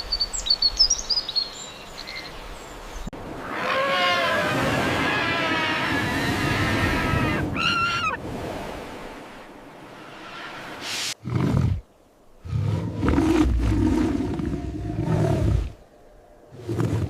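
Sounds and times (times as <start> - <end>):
wavering high animal call: 3.4 - 8.2
deep animal roars: 12.4 - 15.8.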